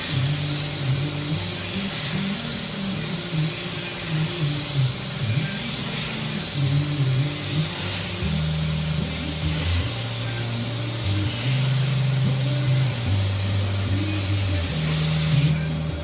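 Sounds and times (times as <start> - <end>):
paint spray gun hissing: 0.0 - 15.8
low hum shifting in pitch: 13.7 - 16.0.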